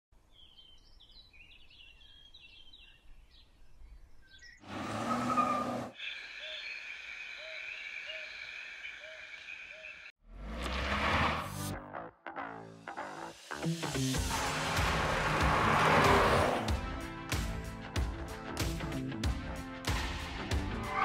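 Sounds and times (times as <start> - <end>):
small birds chirping: 0.2 - 4.7, 5.9 - 10.2.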